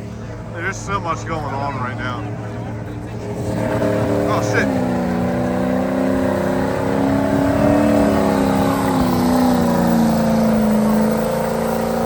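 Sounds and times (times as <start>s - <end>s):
truck engine at high revs: 2.8s - 12.0s.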